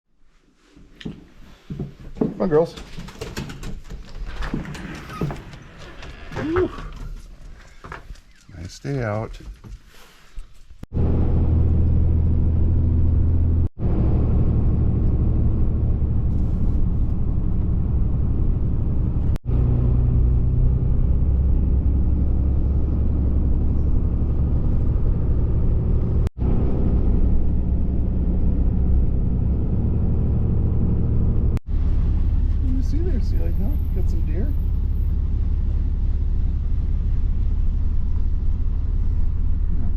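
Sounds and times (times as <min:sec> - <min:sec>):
road rumble: 0:03.6 - 0:39.9
vehicle engine from inside cab: 0:10.9 - 0:39.9.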